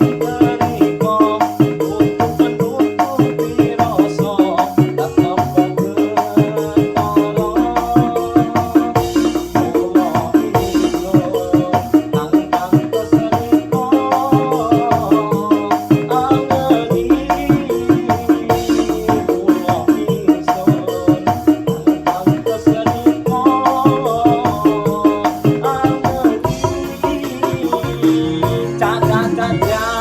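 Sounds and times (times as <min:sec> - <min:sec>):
fast drum and shaker pattern: 0:00.0 - 0:30.0
keyboard melody: 0:00.0 - 0:30.0.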